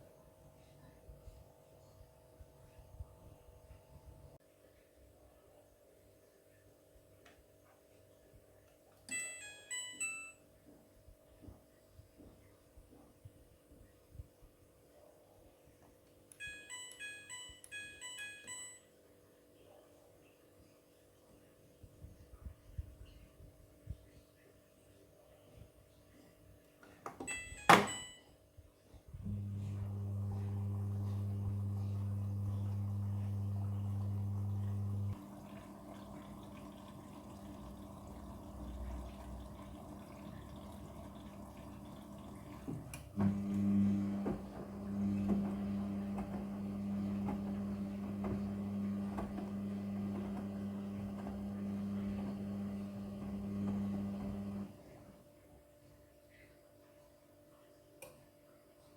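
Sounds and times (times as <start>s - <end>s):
low electrical hum: 27.4s - 58.9s
washing machine clicks: 29.3s - 54.7s.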